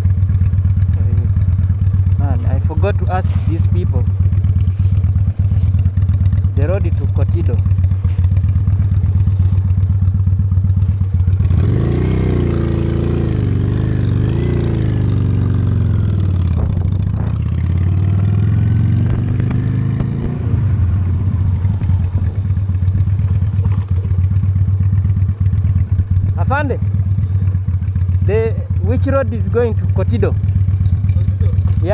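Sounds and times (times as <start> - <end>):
motorcycle engine idling and revving: 0.0 - 31.9
wind noise: 14.6 - 24.4.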